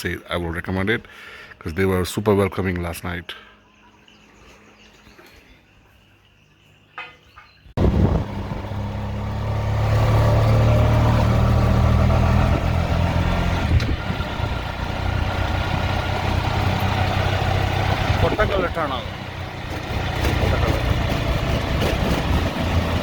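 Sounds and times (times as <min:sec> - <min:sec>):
vehicle engine running: 0:07.8 - 0:23.0.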